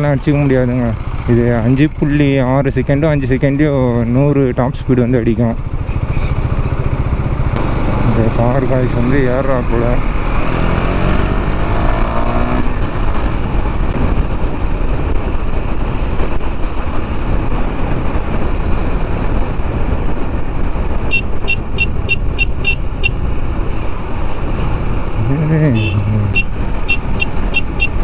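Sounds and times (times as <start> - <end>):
road rush: 0.0 - 28.0
steady wind: 0.0 - 28.0
motorcycle engine accelerating: 5.5 - 28.0
vehicle horn beeping: 21.0 - 23.2, 25.7 - 28.0.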